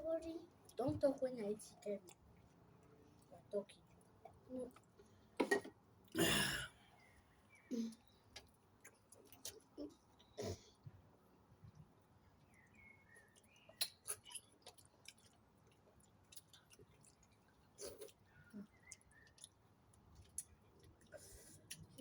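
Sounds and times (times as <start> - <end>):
chewing and lip smacks: 1.8 - 5.0, 8.3 - 10.4, 11.7 - 22.0.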